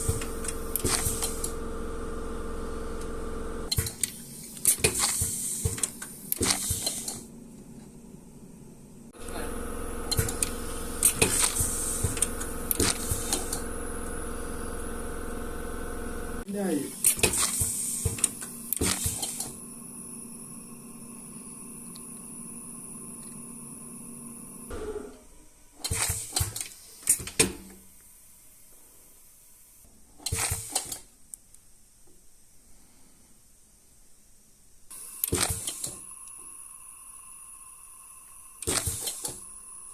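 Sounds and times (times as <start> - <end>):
small machine motor humming: 0.0 - 3.7, 9.2 - 16.4.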